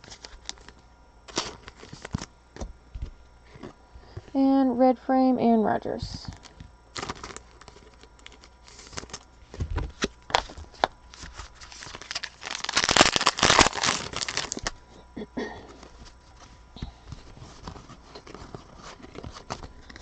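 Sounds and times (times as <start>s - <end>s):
card pack wrapper crinkling: 0.0s - 2.3s, 6.3s - 14.8s, 17.3s - 20.0s.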